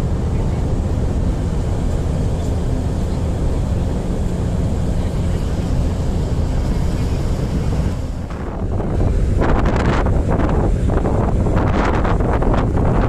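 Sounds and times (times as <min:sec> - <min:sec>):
diesel engines droning: 0:00.0 - 0:13.0
wind on microphone: 0:00.0 - 0:13.0.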